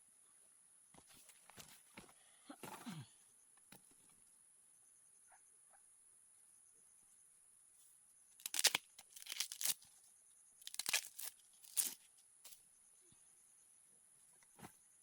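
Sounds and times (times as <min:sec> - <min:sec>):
dry plant material tearing: 0:08.4 - 0:09.9, 0:10.6 - 0:12.0.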